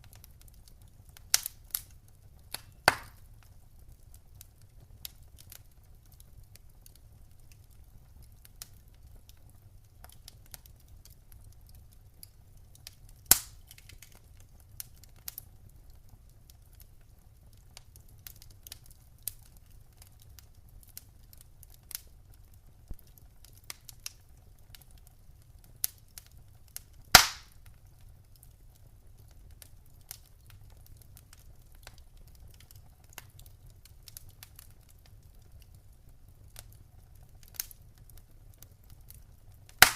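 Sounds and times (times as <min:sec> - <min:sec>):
loud pops from fire: 0:00.0 - 0:05.8, 0:12.6 - 0:16.6, 0:25.8 - 0:27.8, 0:29.5 - 0:39.9
wood fire crackling: 0:00.0 - 0:39.9.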